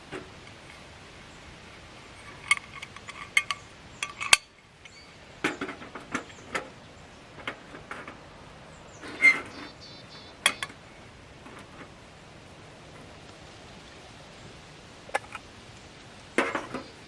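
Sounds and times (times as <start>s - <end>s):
metal cookware clinking: 2.2s - 4.5s.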